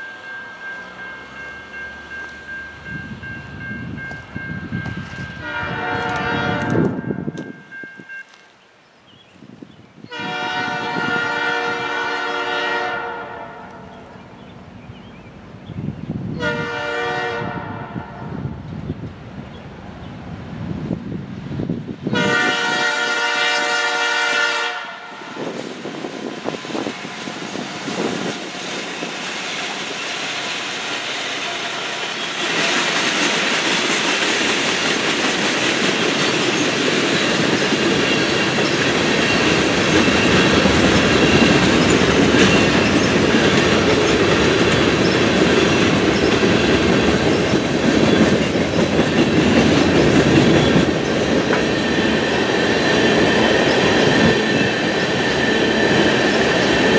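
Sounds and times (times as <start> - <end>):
train wheels rumbling and clacking: 0.0 - 8.3, 20.3 - 56.9
train air horn chord: 5.4 - 7.0, 10.1 - 14.0, 16.4 - 18.3, 22.1 - 25.4.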